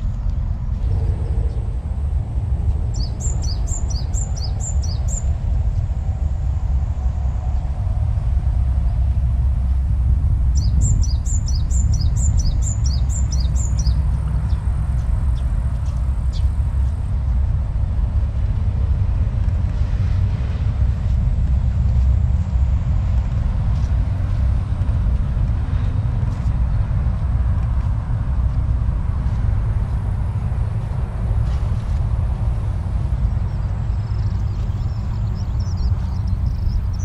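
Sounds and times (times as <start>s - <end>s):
steady low rumble: 0.0s - 37.0s
bird chirping: 2.9s - 5.3s, 10.6s - 16.6s, 33.5s - 37.0s.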